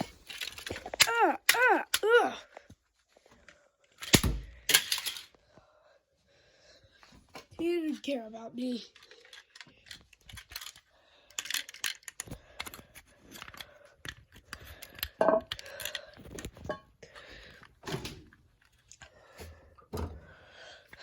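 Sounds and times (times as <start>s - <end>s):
objects being handled: 0.0s - 2.1s, 3.2s - 5.4s, 8.9s - 21.0s.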